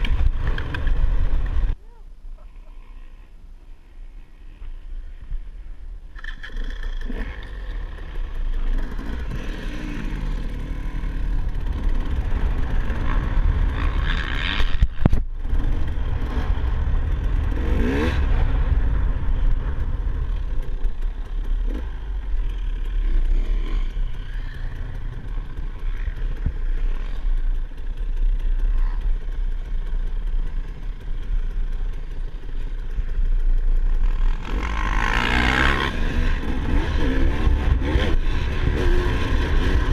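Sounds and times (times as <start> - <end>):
dirt bike engine revving: 6.2 - 39.9
heavy low rumble: 9.2 - 23.2.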